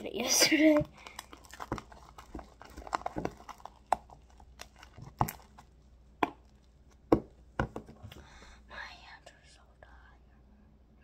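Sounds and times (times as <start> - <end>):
spoon stirring sticky slime: 0.0 - 7.9.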